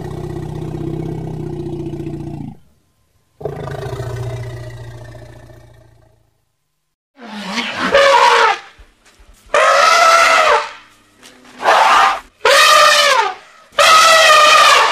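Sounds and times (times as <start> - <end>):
elephant trumpeting: 7.2 - 8.8, 9.5 - 10.9, 11.6 - 14.9.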